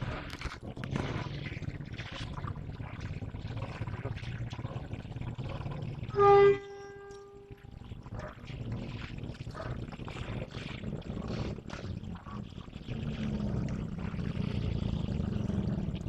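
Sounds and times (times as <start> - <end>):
locomotive horn blast: 6.1 - 7.6.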